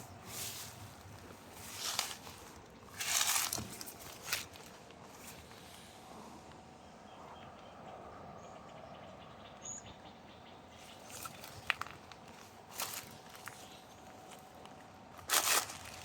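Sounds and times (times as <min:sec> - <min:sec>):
footsteps crunching on leaves: 0:00.0 - 0:05.5, 0:10.9 - 0:14.5, 0:15.2 - 0:16.0.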